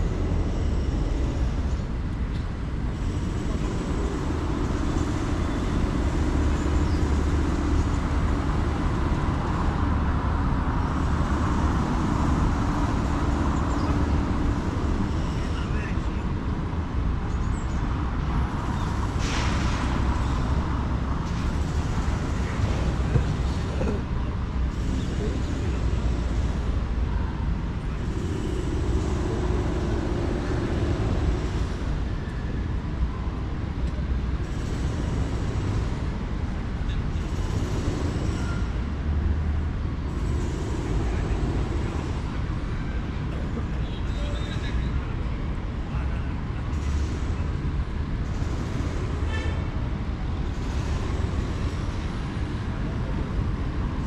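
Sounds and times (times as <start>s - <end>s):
traffic rumble: 0.0s - 54.0s.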